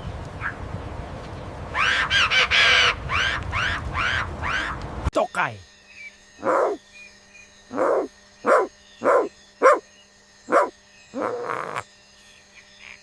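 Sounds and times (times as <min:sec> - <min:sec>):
gecko barking calls: 0:06.4 - 0:06.8, 0:07.6 - 0:11.9.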